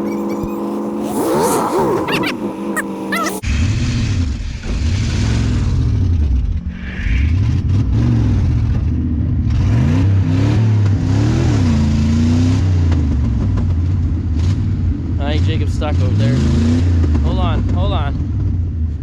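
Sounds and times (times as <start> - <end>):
truck engine revving: 0.0 - 18.9.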